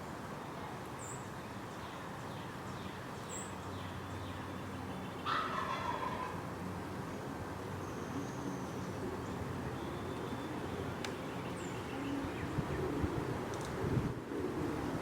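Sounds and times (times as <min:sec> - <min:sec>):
small birds chirping: 0:07.8 - 0:12.9.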